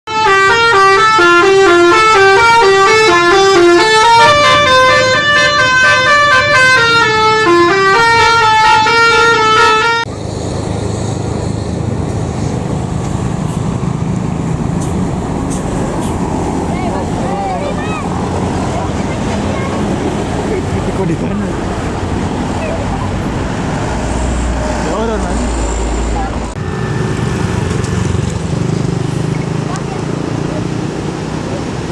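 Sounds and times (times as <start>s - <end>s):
bus horn playing a tune: 0.1s - 10.1s
engine and road noise: 0.1s - 31.9s.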